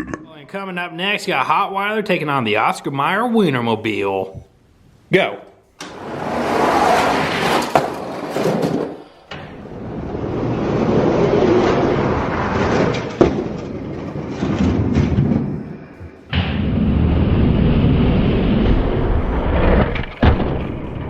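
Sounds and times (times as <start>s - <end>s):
toy trucks rolling down a track: 5.9s - 15.6s.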